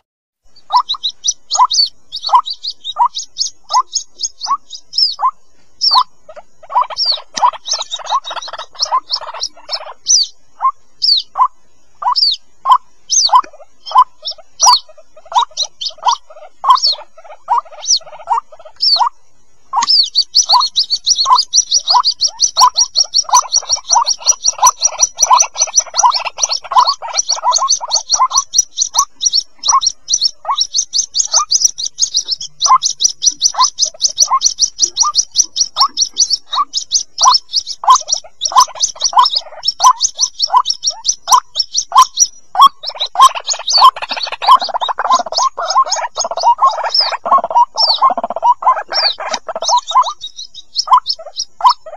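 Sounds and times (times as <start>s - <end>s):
chicks peeping: 0.0s - 51.9s
fast high chirps: 0.0s - 51.9s.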